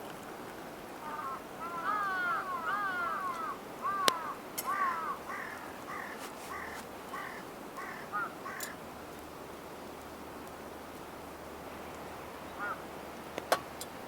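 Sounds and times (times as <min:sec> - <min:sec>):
bird calling repeated notes: 0:01.0 - 0:08.8, 0:12.5 - 0:12.9.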